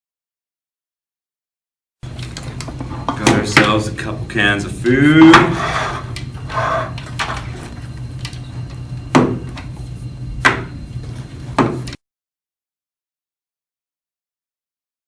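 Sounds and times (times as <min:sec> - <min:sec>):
steady low hum: 0:02.0 - 0:12.0.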